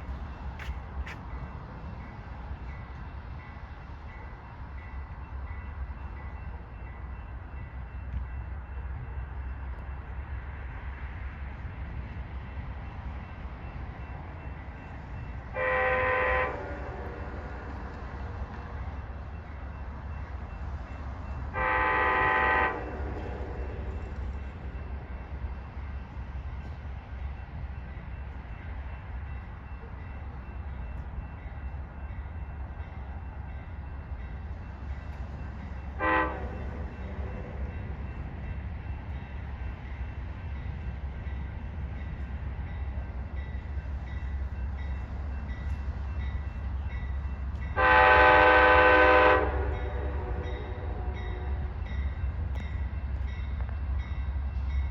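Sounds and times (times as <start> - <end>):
train horn chord: 15.5 - 18.1, 21.5 - 24.2, 35.9 - 37.9, 47.6 - 51.8.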